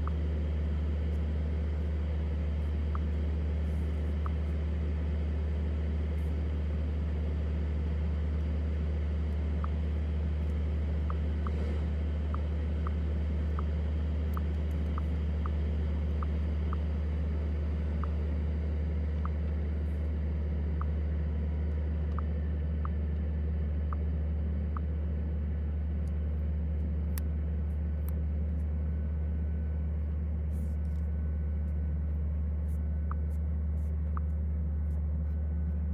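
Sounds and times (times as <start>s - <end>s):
light ticks: 14.3s - 16.9s.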